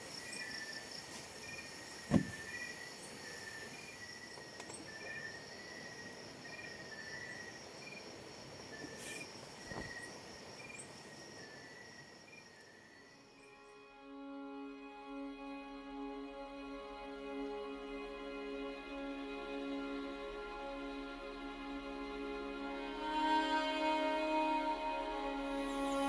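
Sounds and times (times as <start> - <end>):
short insect chirp: 0.0 - 13.7
insects trilling: 0.0 - 13.9
low thump: 2.1 - 2.5.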